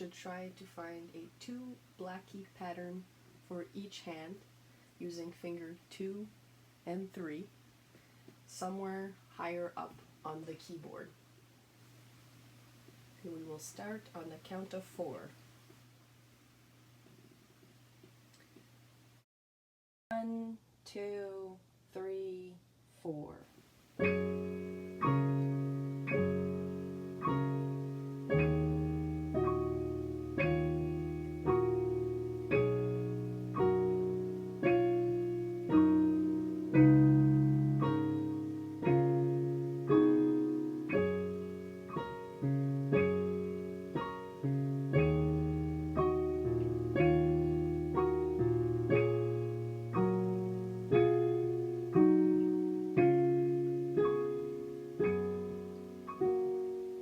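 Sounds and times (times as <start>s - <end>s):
piano playing simple piece: 24.0s - 57.0s.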